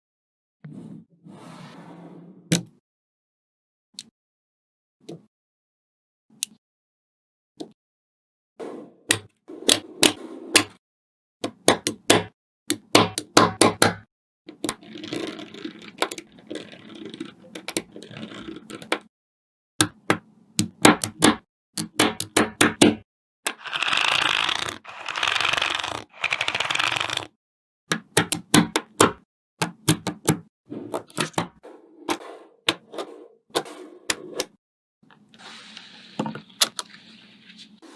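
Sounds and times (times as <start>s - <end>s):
balls rattling and scraping: 14.6s - 19.0s.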